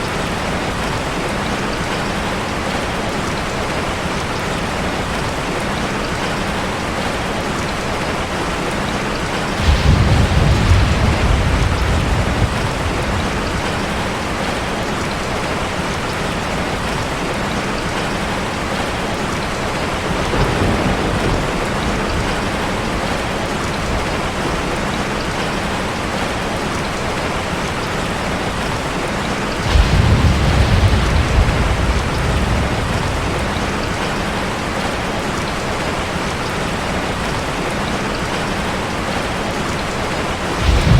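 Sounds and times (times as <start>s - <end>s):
deep rumble: 9.6s - 14.0s, 29.6s - 34.5s, 40.6s - 40.9s
waterfall rushing: 22.9s - 40.9s.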